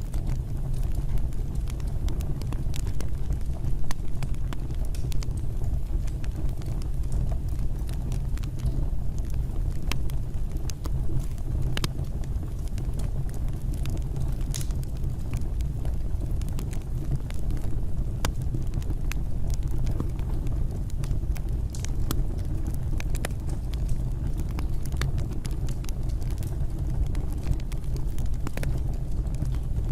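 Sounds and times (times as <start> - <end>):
fire crackling and popping: 0.0 - 29.9
fireplace fire rumbling: 0.0 - 29.9.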